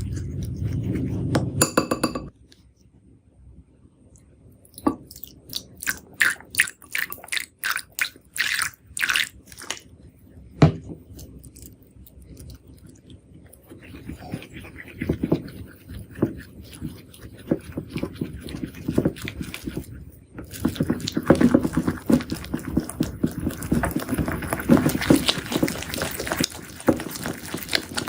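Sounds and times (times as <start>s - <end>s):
slime squishing: 11.0s - 28.0s
slime crackling: 16.4s - 28.0s.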